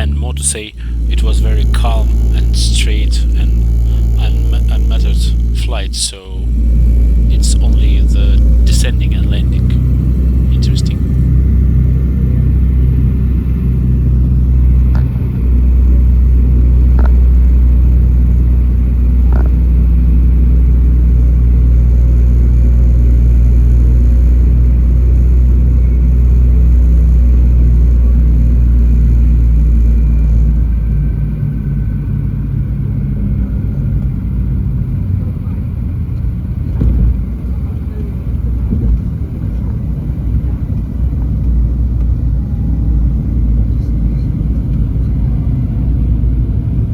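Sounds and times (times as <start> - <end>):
piston engines droning: 0.0 - 46.9
engine knocks: 35.8 - 42.2.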